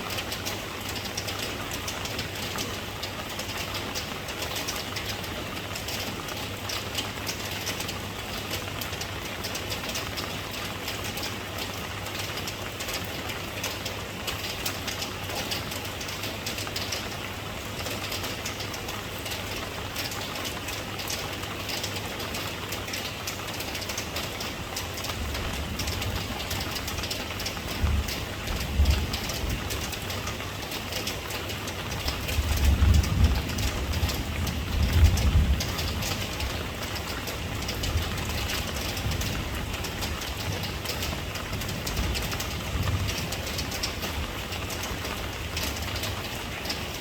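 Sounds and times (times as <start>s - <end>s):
steady rain falling: 0.0s - 47.0s.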